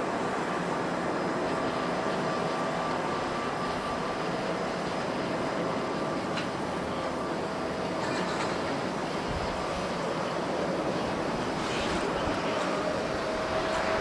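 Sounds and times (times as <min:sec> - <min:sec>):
faint steady whine: 0:00.0 - 0:14.0.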